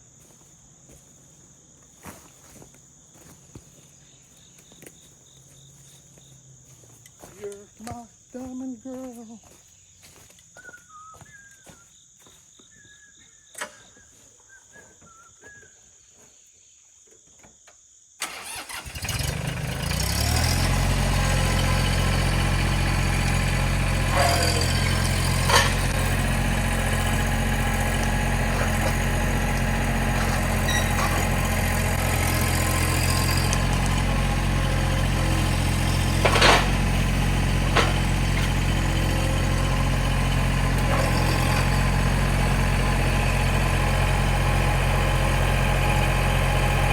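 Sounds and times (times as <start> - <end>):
birds chirping faintly: 1.8 - 17.0
engine starting and idling: 18.2 - 46.9.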